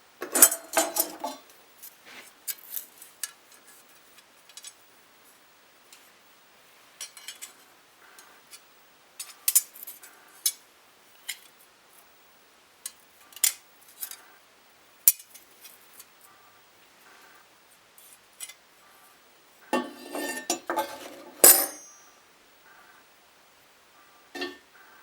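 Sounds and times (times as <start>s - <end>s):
faint short ring: 21.5s - 22.2s.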